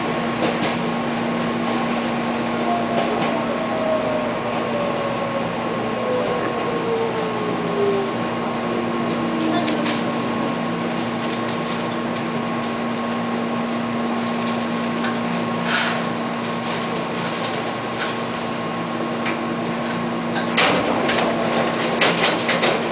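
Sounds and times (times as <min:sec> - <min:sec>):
wheels clacking on track: 0:00.0 - 0:03.6, 0:19.2 - 0:22.9
electric train hum: 0:00.0 - 0:22.9.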